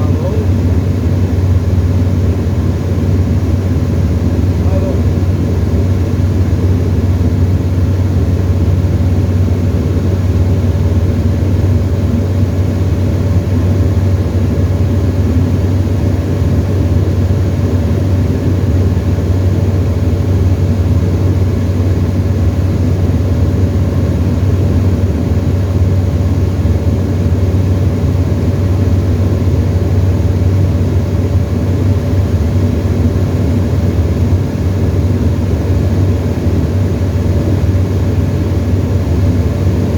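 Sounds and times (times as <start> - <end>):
airplane engine droning: 0.0 - 39.9.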